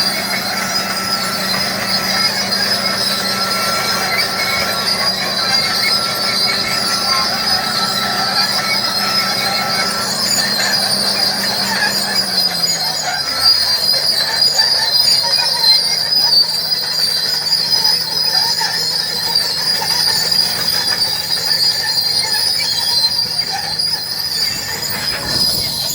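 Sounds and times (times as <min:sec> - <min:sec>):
bulldozer diesel engine running: 0:00.0 - 0:25.9
high-pitched whine: 0:23.0 - 0:25.9.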